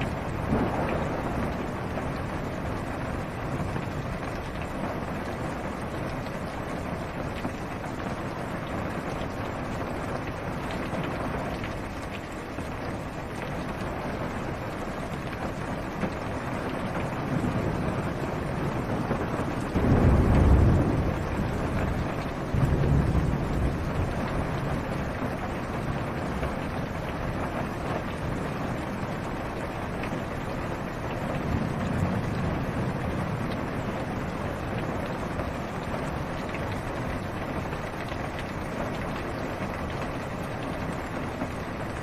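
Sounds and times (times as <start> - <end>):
thunder rumble: 0.0 - 4.2, 17.2 - 27.2, 31.3 - 36.2
rain on a car roof: 0.0 - 42.0.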